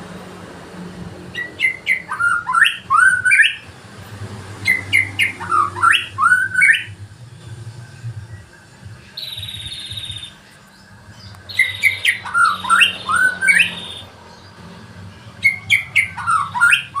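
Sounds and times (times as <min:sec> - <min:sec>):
songbird whistled phrases: 0:01.4 - 0:03.6, 0:04.7 - 0:06.9, 0:11.5 - 0:14.1, 0:15.4 - 0:17.0
bird chattering notes: 0:11.4 - 0:14.1, 0:15.4 - 0:17.0.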